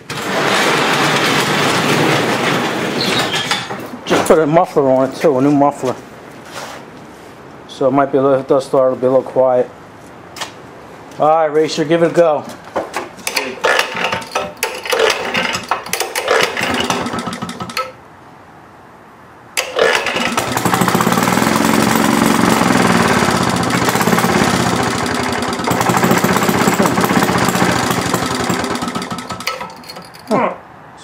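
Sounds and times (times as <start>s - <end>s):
engine kick-start clattering: 13.2s - 18.0s, 19.6s - 30.3s.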